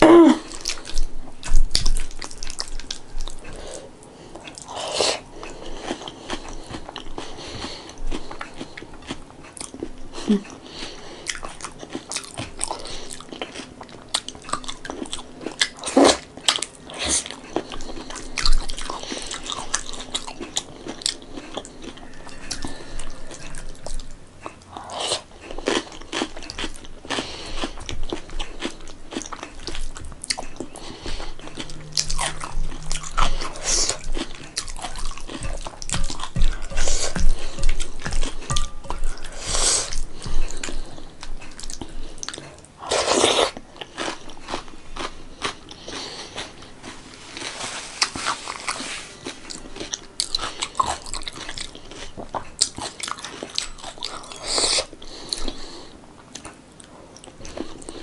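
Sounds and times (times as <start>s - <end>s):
chewing and crunching food: 0.0s - 58.0s
wet mouth sounds: 15.6s - 43.6s.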